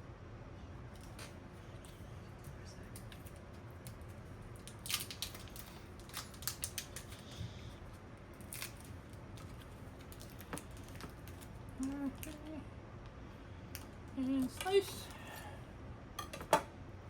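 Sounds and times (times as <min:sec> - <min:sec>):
plastic packet crackling: 0:03.0 - 0:07.4, 0:08.3 - 0:12.5.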